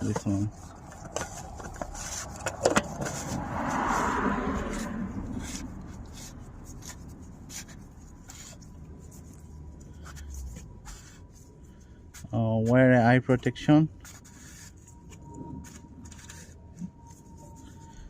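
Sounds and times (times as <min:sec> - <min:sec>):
cap scraping while screwed on: 0:00.0 - 0:03.5.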